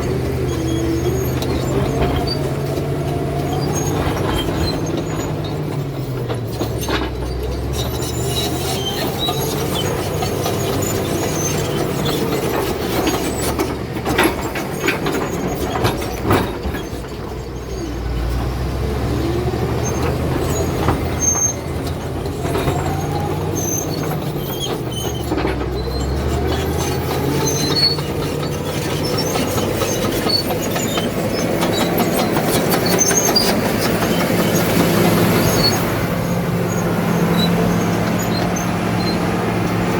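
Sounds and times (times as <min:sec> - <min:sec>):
bulldozer diesel engine: 0:00.0 - 0:39.9
steel tracks clanking and squealing: 0:00.0 - 0:39.9.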